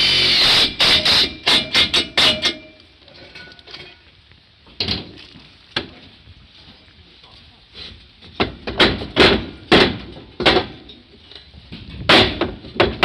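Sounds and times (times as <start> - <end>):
hammer strikes on roof: 8.4 - 10.8.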